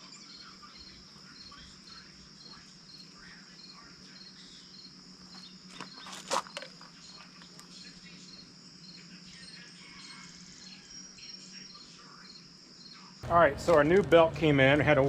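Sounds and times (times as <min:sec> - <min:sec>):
high insect hiss: 0:00.0 - 0:13.2
crickets chirping: 0:00.0 - 0:13.5.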